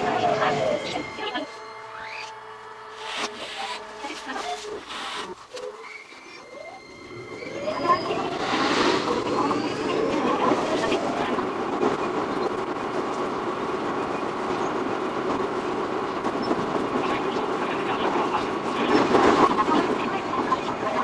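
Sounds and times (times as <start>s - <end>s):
train wheels rumbling and rattling: 6.8s - 21.0s.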